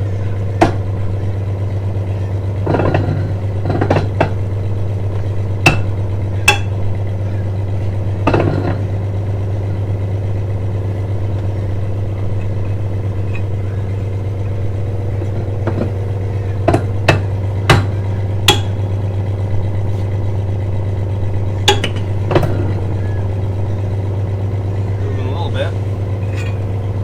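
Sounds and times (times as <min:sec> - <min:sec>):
engine droning: 0:00.0 - 0:27.0
sharp metallic clanks: 0:00.1 - 0:27.0.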